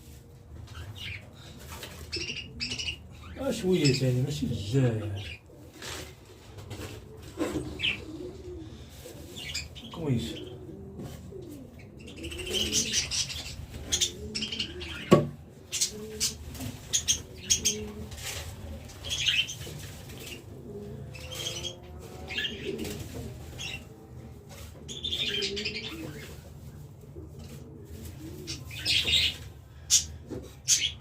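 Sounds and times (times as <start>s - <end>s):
pigeons cooing: 0.0s - 31.0s
wings flapping: 21.2s - 23.8s.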